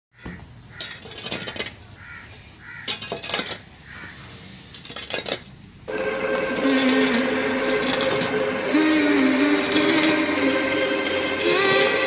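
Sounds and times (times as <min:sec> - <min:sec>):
harsh bird calls: 0:00.1 - 0:04.4.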